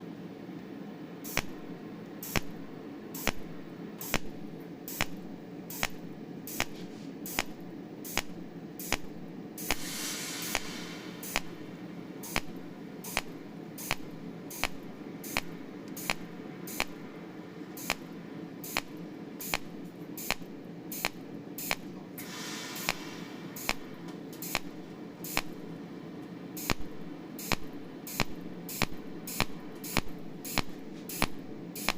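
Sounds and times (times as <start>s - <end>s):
steady machine hum: 0.0s - 31.9s
welding machine clicks: 1.3s - 11.6s, 12.2s - 17.0s, 17.8s - 22.0s, 22.8s - 25.6s, 26.6s - 31.9s
hiss: 9.6s - 12.5s, 18.7s - 24.7s, 25.3s - 25.6s, 26.6s - 26.8s.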